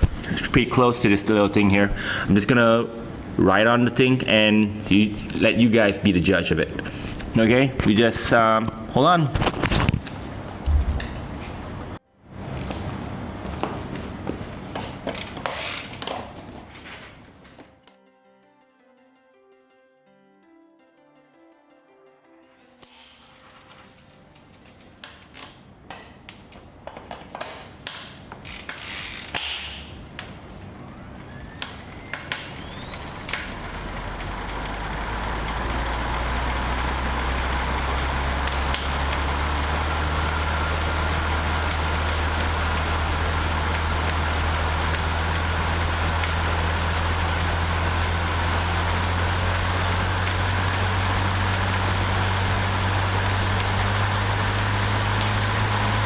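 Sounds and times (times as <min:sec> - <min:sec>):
bike trainer whine: 0:09.6 - 0:17.7, 0:28.3 - 0:56.0.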